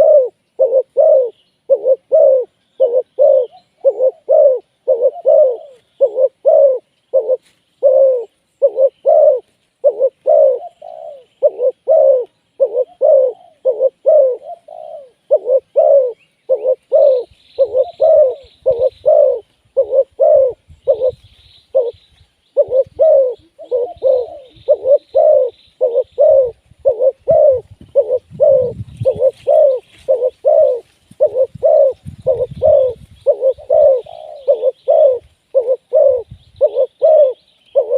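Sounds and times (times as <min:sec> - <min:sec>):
doves cooing: 0:00.0 - 0:37.9.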